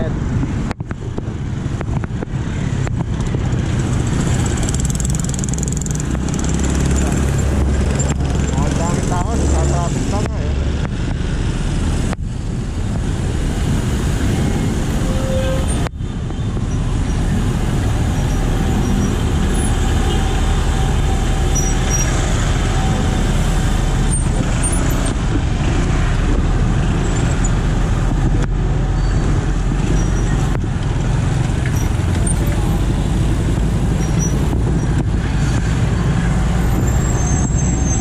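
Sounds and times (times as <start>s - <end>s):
loud road traffic: 0.0s - 38.0s.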